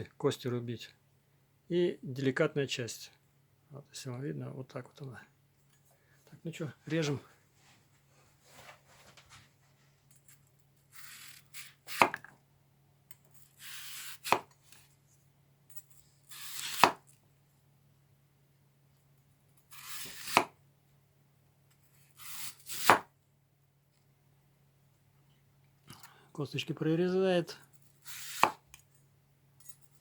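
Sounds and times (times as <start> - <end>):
knife slicing apple: 10.9 - 12.3, 13.5 - 14.8, 16.2 - 17.2, 19.7 - 20.6, 22.0 - 23.1, 28.0 - 28.8.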